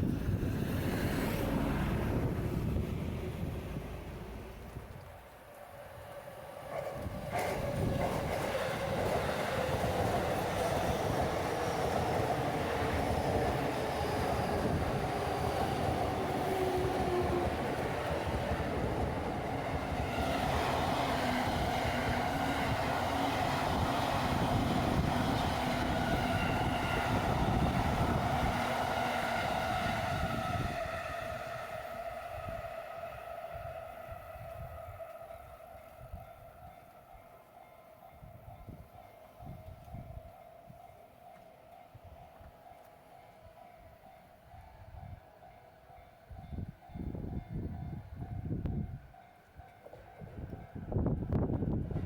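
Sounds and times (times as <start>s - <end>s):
train wheels rumbling on rail: 0.0s - 37.3s, 44.6s - 52.0s
high train whine: 0.0s - 52.0s.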